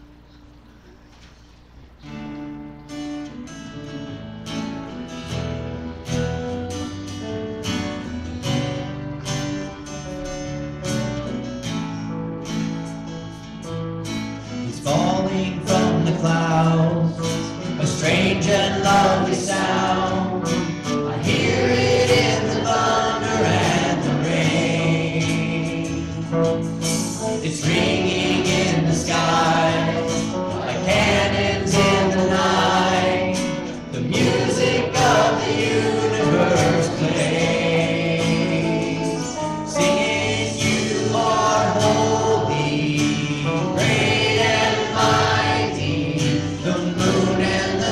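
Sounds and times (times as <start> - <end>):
strummed acoustic guitar: 1.2 - 47.9
group singing worship song: 14.6 - 47.9.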